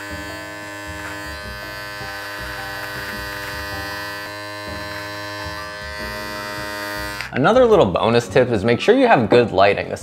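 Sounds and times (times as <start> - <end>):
electric beard trimmer buzzing: 0.0 - 7.4.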